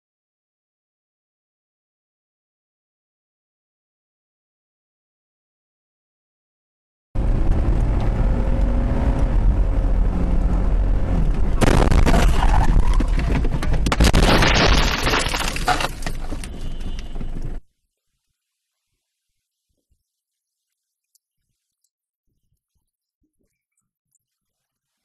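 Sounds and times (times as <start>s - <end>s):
low road rumble: 7.2s - 17.6s
car crash: 11.3s - 17.6s
crunching and shattering: 11.6s - 17.1s.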